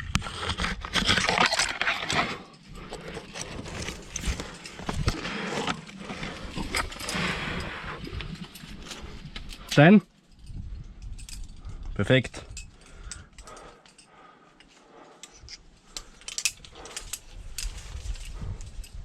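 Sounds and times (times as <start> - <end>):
scraping and rustling against rock: 0.0 - 10.4
sharp clicks of climbing gear: 0.0 - 19.0
hard breathing: 2.0 - 9.7, 11.2 - 19.0.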